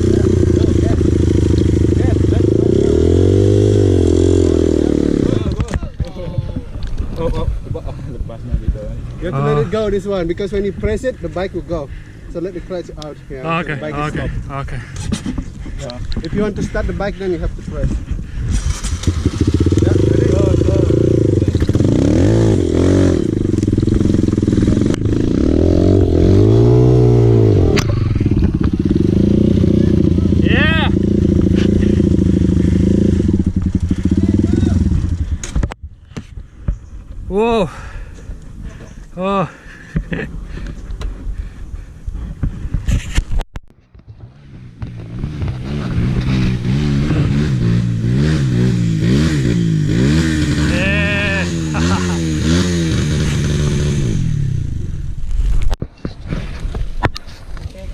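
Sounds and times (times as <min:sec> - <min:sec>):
dirt bike engine revving: 0:00.0 - 0:05.6, 0:18.5 - 0:35.4, 0:44.3 - 0:55.0.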